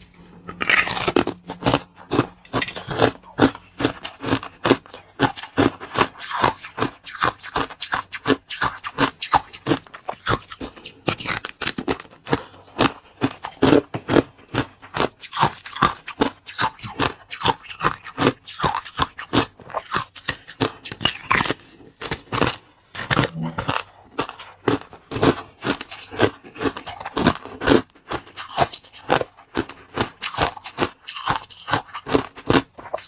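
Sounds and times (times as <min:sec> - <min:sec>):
crunchy food chewing: 0:00.0 - 0:33.0.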